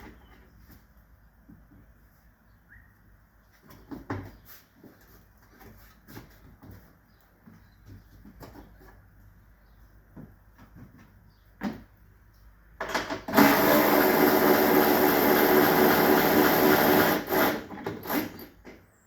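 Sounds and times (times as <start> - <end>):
power tool motor running: 13.3 - 18.5.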